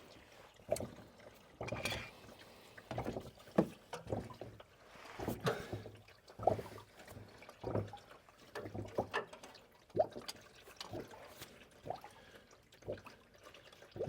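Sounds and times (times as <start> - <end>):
oil draining into a pan: 0.0 - 14.0
splashes and knocks: 0.6 - 12.0.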